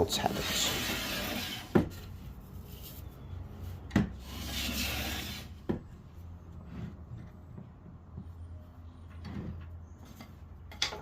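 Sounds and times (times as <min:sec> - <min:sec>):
tool scraping along wood board: 0:00.0 - 0:02.4, 0:04.1 - 0:07.4.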